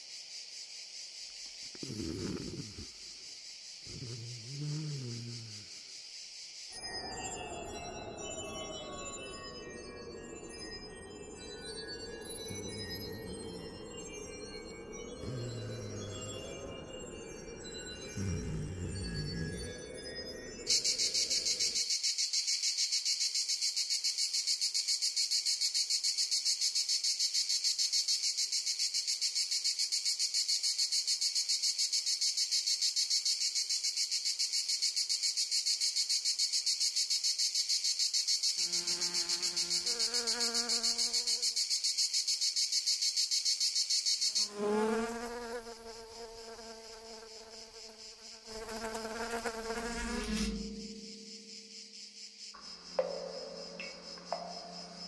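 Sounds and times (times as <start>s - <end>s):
insect chirring: 0.0s - 7.6s, 12.2s - 17.0s, 17.6s - 55.0s
low buzzing hum: 49.6s - 51.7s.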